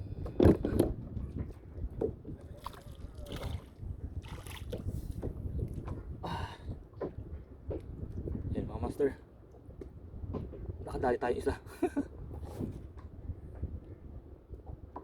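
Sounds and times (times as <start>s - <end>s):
wind rumbling on microphone: 0.0s - 15.0s
water sloshing against kayak hull: 0.2s - 8.6s.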